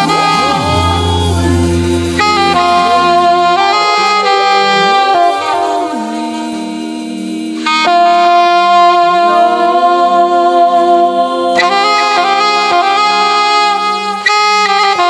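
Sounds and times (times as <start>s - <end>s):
sustained chords: 0.0s - 4.8s
saxophone long held notes: 0.0s - 6.9s, 7.6s - 15.0s.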